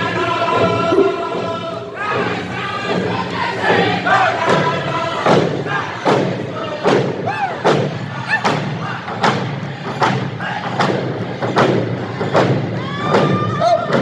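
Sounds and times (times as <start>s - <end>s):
heavy thumps beat: 0.0s - 14.0s
people shouting: 7.2s - 9.0s, 12.8s - 14.0s.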